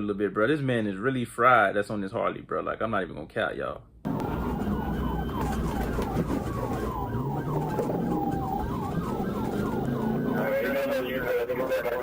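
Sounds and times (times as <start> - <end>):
engine and road rumble: 4.1 - 12.0
police siren fast yelp: 4.1 - 12.0
slower gliding siren tone: 4.1 - 12.0.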